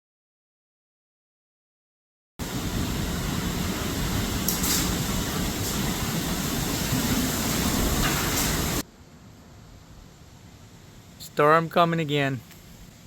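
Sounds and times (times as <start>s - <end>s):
storm wind buffeting microphone: 2.4s - 8.8s.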